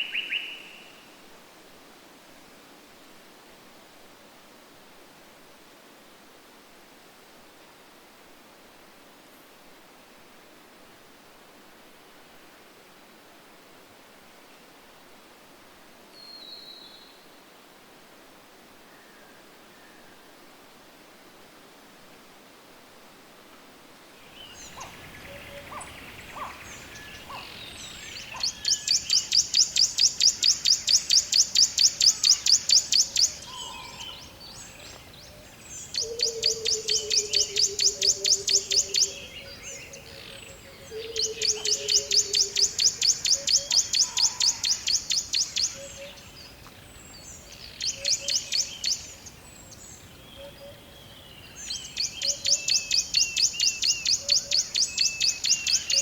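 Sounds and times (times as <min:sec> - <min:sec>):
faint background hiss: 0:00.0 - 0:56.0
songbird high trill: 0:24.4 - 0:46.4.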